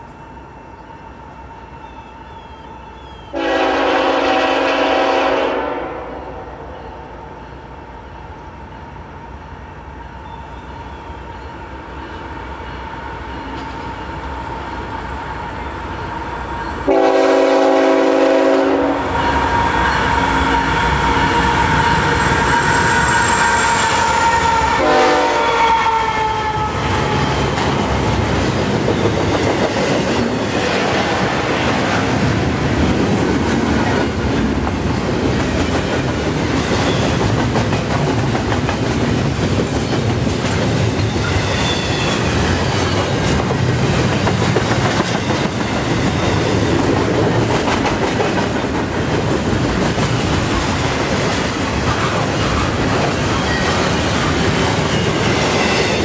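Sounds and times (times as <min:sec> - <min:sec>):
locomotive horn blasts: 0:03.3 - 0:06.7, 0:16.9 - 0:27.4
clickety-clack over rail joints: 0:27.0 - 0:56.0.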